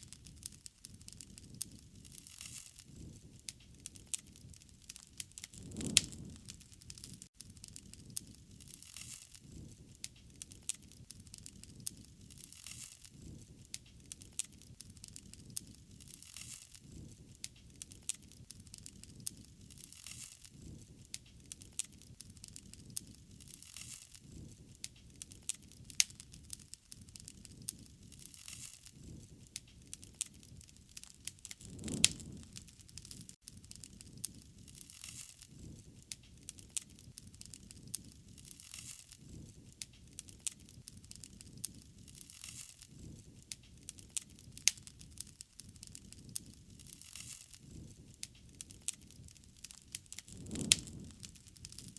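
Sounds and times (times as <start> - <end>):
rush of flame: 0.0 - 51.9
wood fire crackling: 0.0 - 51.9.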